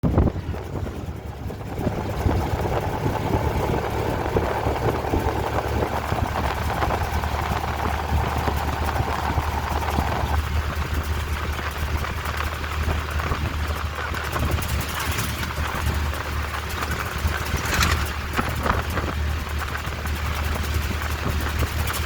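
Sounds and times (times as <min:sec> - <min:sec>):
vehicle engine running: 0:00.0 - 0:22.0
broad rushing noise: 0:15.0 - 0:19.0.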